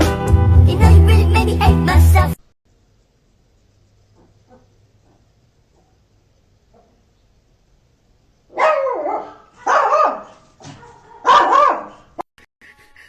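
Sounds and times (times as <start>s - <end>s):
dog barking: 4.2s - 5.9s, 6.7s - 7.0s, 8.5s - 12.2s.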